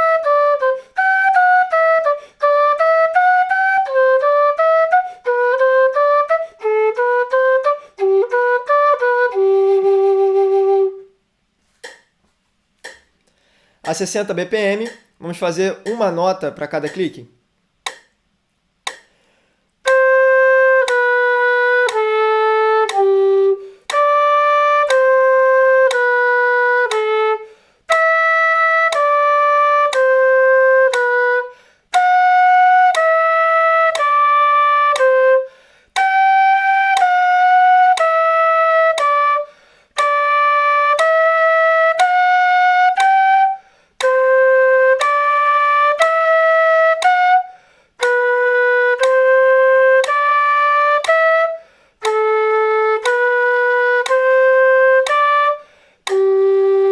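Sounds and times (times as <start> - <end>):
metronome clicks: 11.7 - 12.1, 12.8 - 17.2, 17.8 - 18.2, 18.8 - 19.2, 19.8 - 23.2, 23.9 - 24.2, 24.8 - 25.2, 25.8 - 27.2, 27.9 - 28.2, 28.9 - 31.3, 31.9 - 33.2, 33.9 - 34.3, 34.9 - 35.2, 37.0 - 38.2, 38.9 - 39.2, 42.9 - 43.4, 44.0 - 44.3, 44.9 - 45.4, 47.0 - 47.4, 48.0 - 51.4, 52.0 - 56.7
player breathing: 13.3 - 13.8, 19.0 - 19.7, 55.6 - 56.0.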